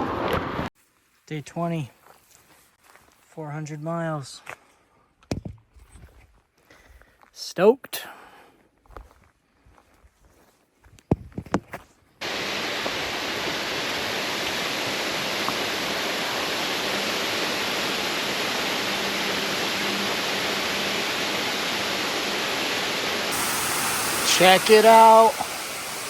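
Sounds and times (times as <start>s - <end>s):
waterfall roaring: 12.3s - 26.0s.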